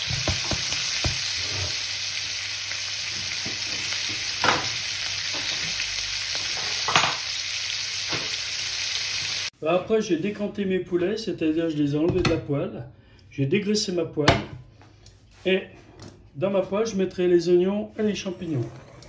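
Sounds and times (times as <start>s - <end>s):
chicken sizzling in frying pan: 0.0s - 9.5s.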